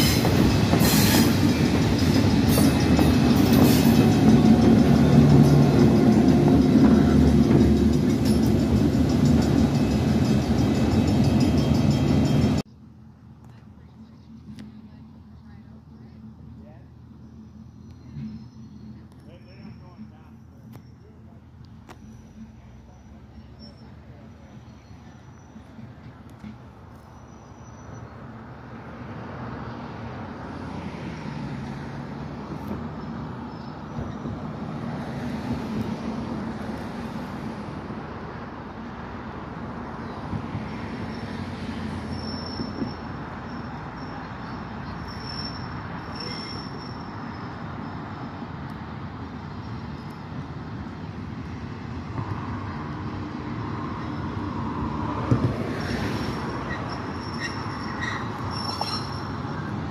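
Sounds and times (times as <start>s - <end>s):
rolling train wheels: 0.0s - 12.7s, 30.0s - 59.9s
diesel locomotive engine: 0.0s - 59.9s
high wheel squeal: 21.9s - 25.8s, 27.0s - 28.3s, 40.7s - 48.5s, 55.7s - 59.9s.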